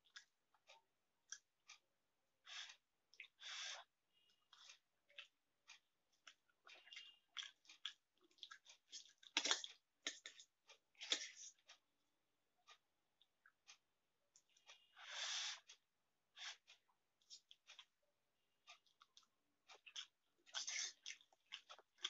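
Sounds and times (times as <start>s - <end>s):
person chewing noodles: 2.5s - 11.8s, 16.4s - 17.9s, 18.6s - 22.0s.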